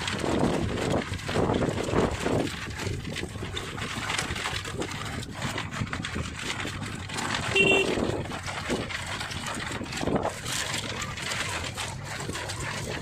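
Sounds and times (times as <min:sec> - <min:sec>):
motorcycle running: 0:00.0 - 0:13.0
wind: 0:00.0 - 0:13.0
vehicle horn beep: 0:07.4 - 0:08.1.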